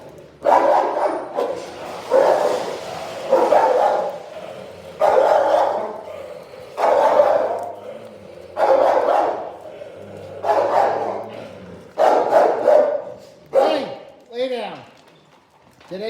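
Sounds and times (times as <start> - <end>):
dog barking: 0.4 - 7.9, 8.6 - 9.7, 10.4 - 14.1.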